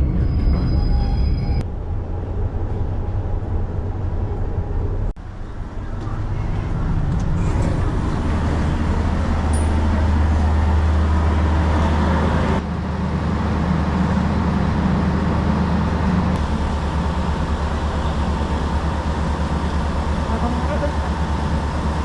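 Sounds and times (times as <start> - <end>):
diesel train drone from inside: 0.0 - 22.0.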